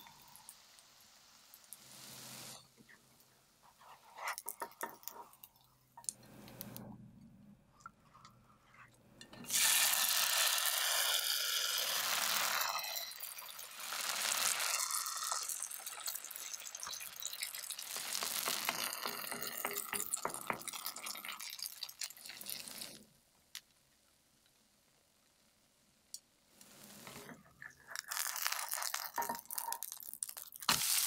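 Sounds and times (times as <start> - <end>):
batter sizzling in hot oil: 0.0 - 2.8, 9.5 - 23.0, 26.7 - 31.0.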